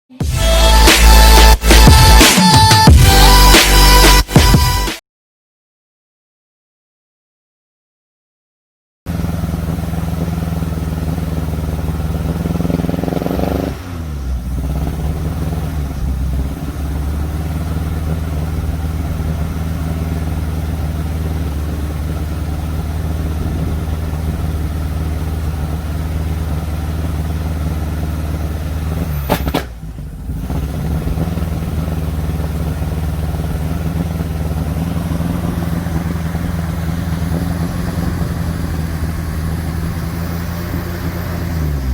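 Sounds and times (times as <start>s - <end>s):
car engine misfiring: 9.1s - 41.9s
sharp click: 29.2s - 29.8s.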